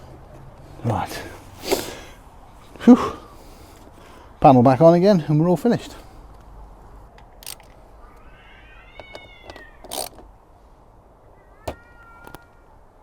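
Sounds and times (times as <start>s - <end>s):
cat meowing: 8.0s - 9.8s, 11.3s - 12.7s.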